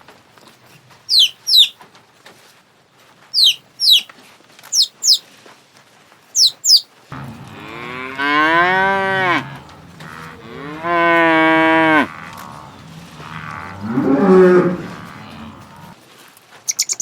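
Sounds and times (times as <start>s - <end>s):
short high falling chirps: 3.4s - 4.1s, 6.4s - 6.8s
cow mooing: 7.1s - 16.0s.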